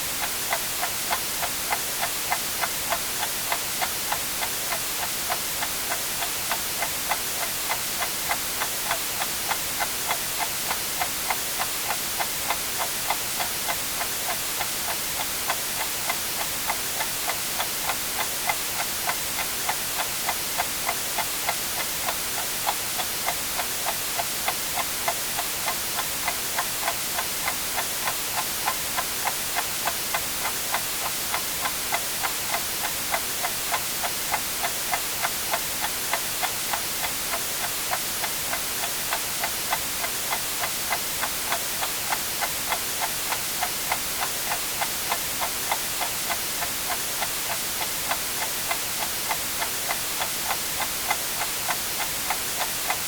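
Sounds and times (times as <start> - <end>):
white noise hiss: 0.0 - 53.0.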